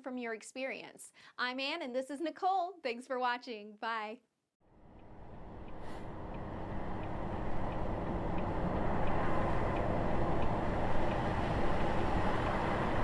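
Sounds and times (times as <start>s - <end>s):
road noise: 4.7s - 13.0s.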